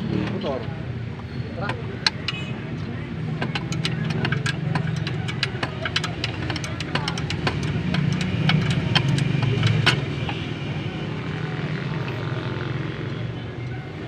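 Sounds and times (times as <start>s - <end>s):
vehicle engine running: 0.0s - 14.0s
sharp irregular clicks: 1.6s - 11.0s.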